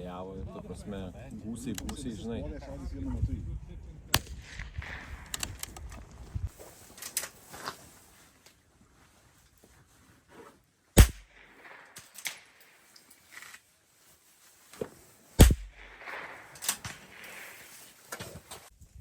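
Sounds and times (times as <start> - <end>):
rifle shots cracking: 4.2 - 6.0, 11.0 - 12.9, 15.4 - 17.6.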